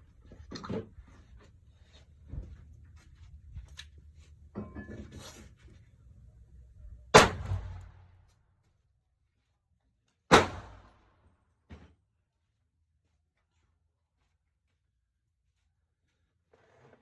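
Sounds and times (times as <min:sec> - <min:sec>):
revolver gunshot with echo: 0:07.1 - 0:08.0, 0:10.3 - 0:11.0.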